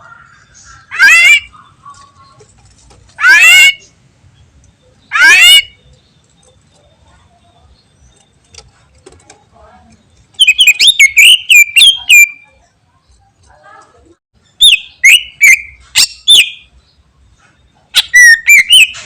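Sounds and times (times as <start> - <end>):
bird singing whistled notes: 10.3 - 12.6, 14.6 - 16.8, 17.7 - 19.0.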